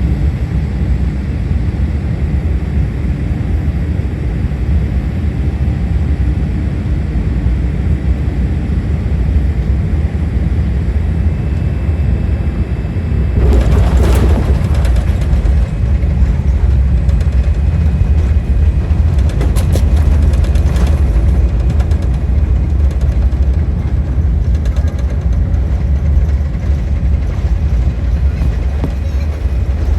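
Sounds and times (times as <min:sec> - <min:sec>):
jet airliner rumble: 0:00.0 - 0:29.9
rush of noise: 0:13.2 - 0:23.0.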